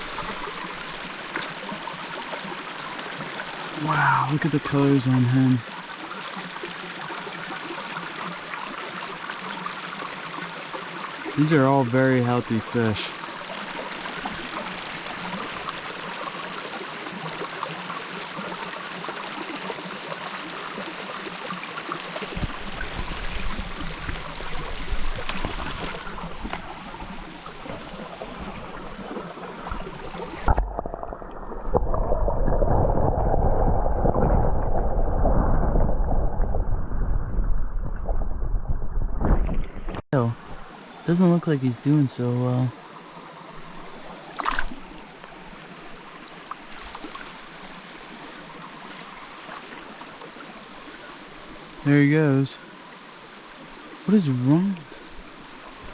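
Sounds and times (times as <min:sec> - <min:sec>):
mountain stream rushing: 0:00.0 - 0:30.6
muffled underwater water sound: 0:00.0 - 0:55.9.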